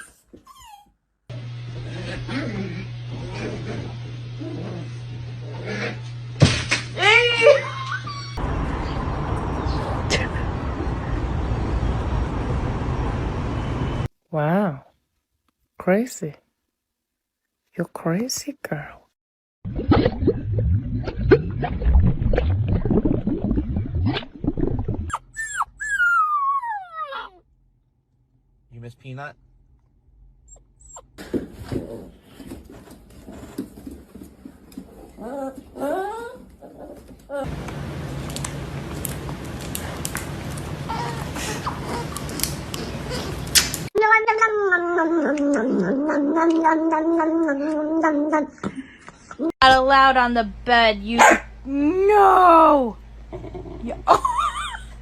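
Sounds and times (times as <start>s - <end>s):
pet whining cries: 0.0s - 0.9s, 25.1s - 27.4s
pet grumbling: 1.8s - 6.0s
cat yowling: 44.0s - 48.4s.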